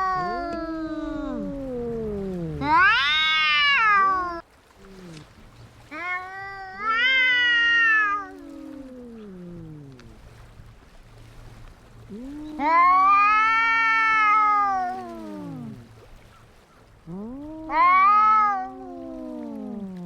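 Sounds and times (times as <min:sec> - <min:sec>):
cats yowling: 0:00.0 - 0:04.4, 0:05.9 - 0:10.2, 0:12.1 - 0:15.9, 0:17.1 - 0:20.0.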